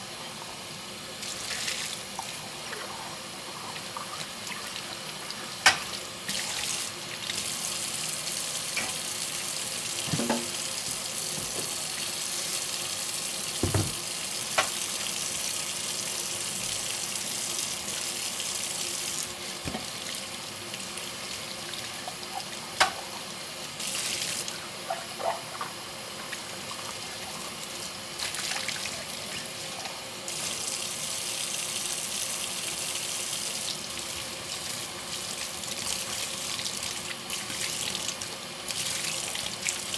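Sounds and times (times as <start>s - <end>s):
tap water running into sink: 1.2s - 39.9s
dishes clinking: 10.1s - 10.6s, 13.6s - 14.0s.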